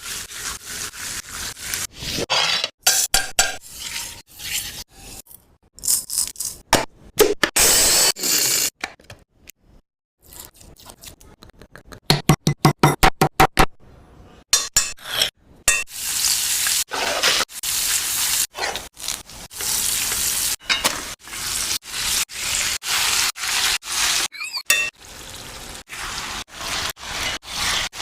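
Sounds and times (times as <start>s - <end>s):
utensils clinking on a pan: 20.6s - 21.0s.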